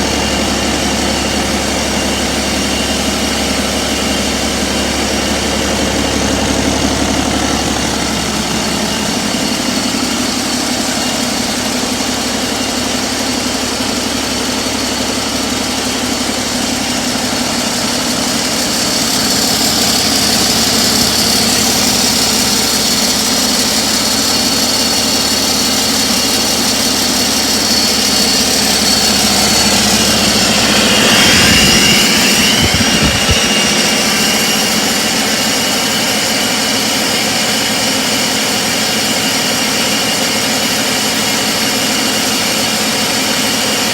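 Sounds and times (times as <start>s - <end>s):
high whine: 0.0s - 11.7s, 16.2s - 24.4s, 25.7s - 36.6s
diesel engine running: 0.0s - 43.9s.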